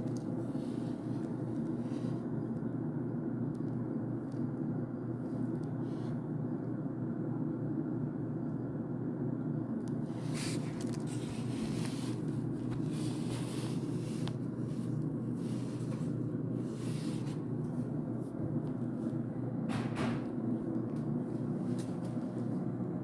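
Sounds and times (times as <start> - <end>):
water heater rumbling: 9.8 - 23.0.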